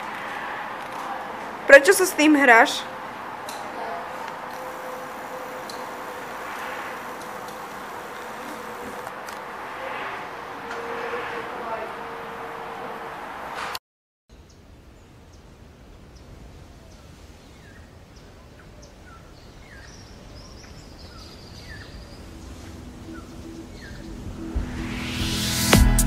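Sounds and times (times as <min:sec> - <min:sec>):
low outdoor background noise: 0:00.0 - 0:25.1
small birds chirping: 0:16.1 - 0:24.3.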